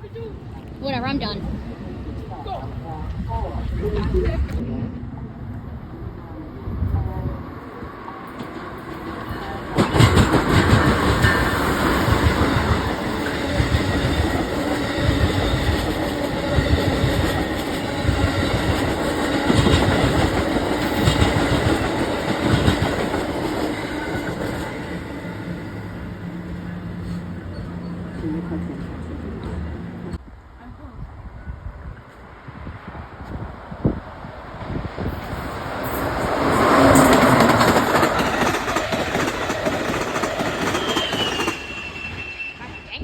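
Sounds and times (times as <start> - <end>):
train wheels clacking over rails: 8.2 - 26.0, 35.1 - 42.4
train knocks: 8.3 - 26.5, 35.0 - 41.7.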